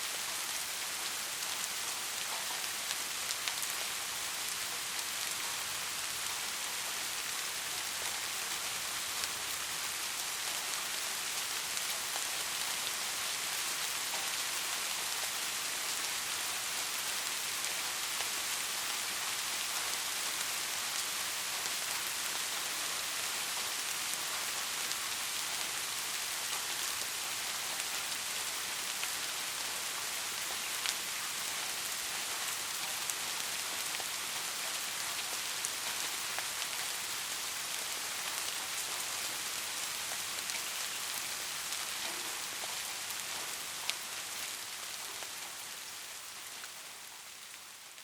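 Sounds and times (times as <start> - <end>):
soft rain falling: 0.0 - 48.0.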